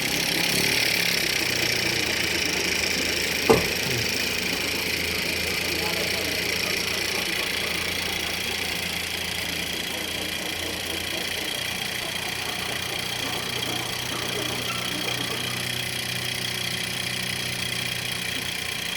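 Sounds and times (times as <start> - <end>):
model engine running: 0.0 - 18.9.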